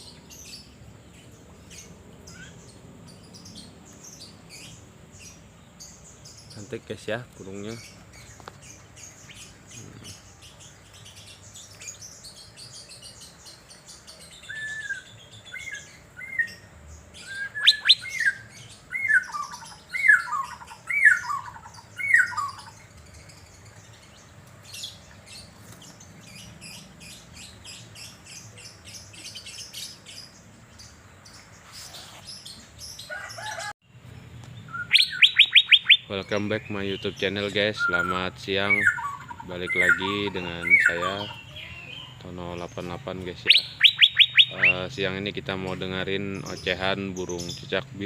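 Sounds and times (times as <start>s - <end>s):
bird whistling liquid notes: 34.7s - 36.1s, 43.5s - 44.8s
soft high chirps: 34.7s - 36.1s, 43.4s - 44.8s.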